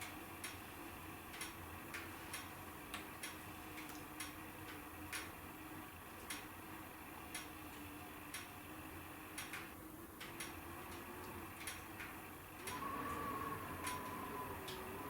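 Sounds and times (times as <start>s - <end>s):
faint thin whistle: 12.7s - 15.0s.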